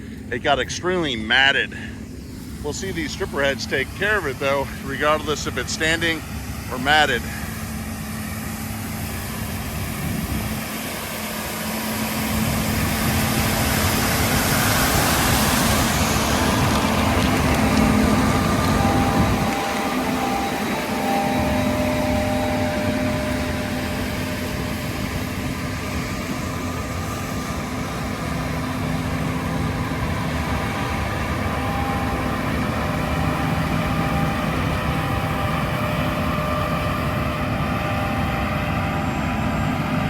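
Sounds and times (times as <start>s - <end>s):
combine harvester droning: 0.0s - 40.0s.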